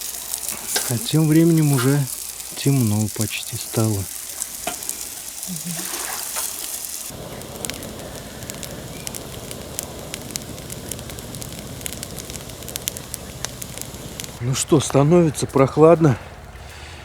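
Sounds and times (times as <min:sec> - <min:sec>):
food sizzling on a grill: 0:00.0 - 0:15.9
campfire crackling and popping: 0:00.0 - 0:16.6.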